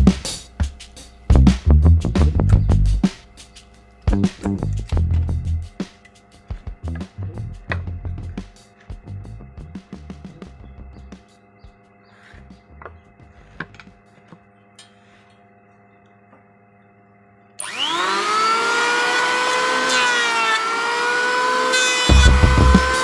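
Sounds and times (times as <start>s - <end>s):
drum beats: 0.0s - 13.3s, 22.0s - 23.0s
electric power tool cutting wood: 17.6s - 23.0s.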